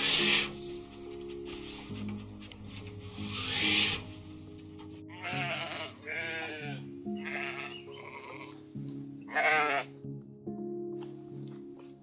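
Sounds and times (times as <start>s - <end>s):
background music: 0.0s - 12.0s
sheep bleating: 5.1s - 8.6s, 9.3s - 10.0s.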